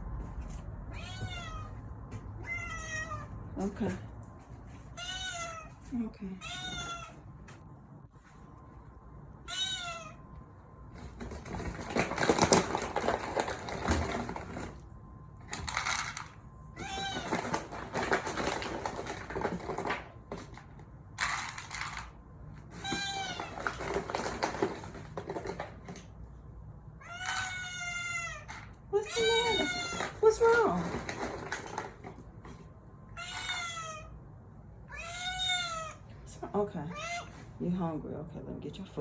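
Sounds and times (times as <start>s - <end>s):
cat meowing: 0.9s - 3.4s, 4.9s - 7.2s, 9.4s - 10.3s, 27.0s - 30.2s, 33.1s - 34.2s, 34.9s - 36.1s, 36.9s - 37.4s.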